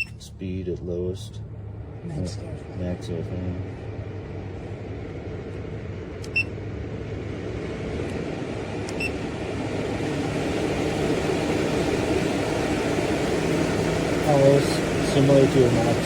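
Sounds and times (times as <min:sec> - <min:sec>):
short electronic beeps: 0:00.0 - 0:00.2, 0:06.3 - 0:06.5
vent fan whooshing: 0:00.0 - 0:16.0.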